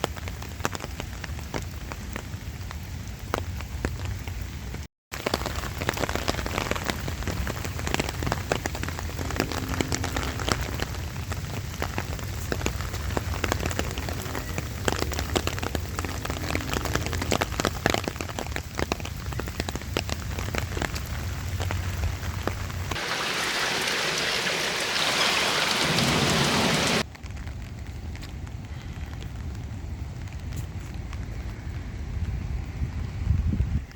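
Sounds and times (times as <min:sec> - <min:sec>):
light rain drops tapping: 0:00.0 - 0:33.9
steady hiss: 0:23.0 - 0:27.0.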